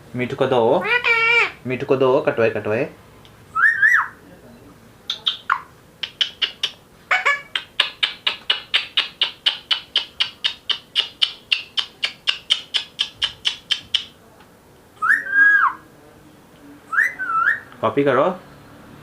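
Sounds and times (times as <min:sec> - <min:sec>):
parakeet shrill calls: 0:00.8 - 0:01.6, 0:03.6 - 0:04.2, 0:05.1 - 0:14.1.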